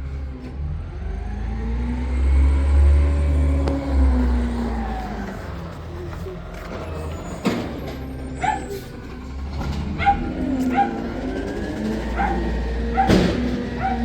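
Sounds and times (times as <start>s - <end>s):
garbage truck engine rumbling: 0.0s - 14.0s
dog barking and yipping: 8.3s - 8.9s, 9.8s - 14.0s.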